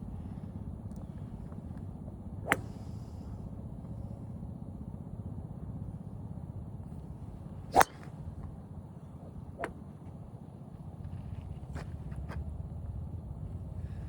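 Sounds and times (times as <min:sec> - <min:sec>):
golf iron striking ball: 0:02.4 - 0:03.0, 0:07.7 - 0:08.3.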